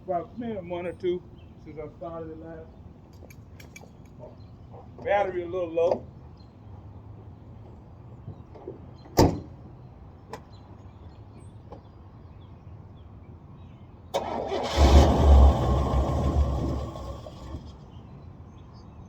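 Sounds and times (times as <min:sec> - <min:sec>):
car starter cranking engine: 0:14.1 - 0:18.0.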